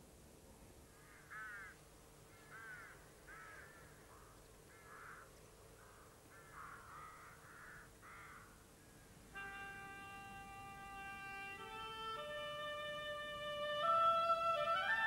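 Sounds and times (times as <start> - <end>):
harsh caw-like bird calls: 0.8 - 9.2
violin music: 9.4 - 15.0.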